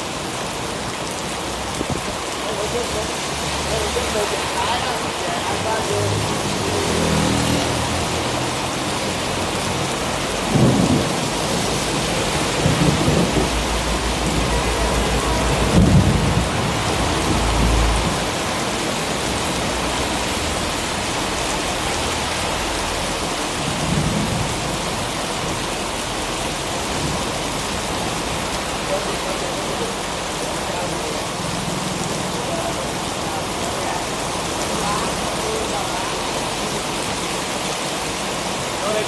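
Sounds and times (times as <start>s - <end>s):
heavy rain pouring: 0.0s - 39.0s
low thunder rumbles: 9.5s - 20.8s, 23.6s - 28.6s.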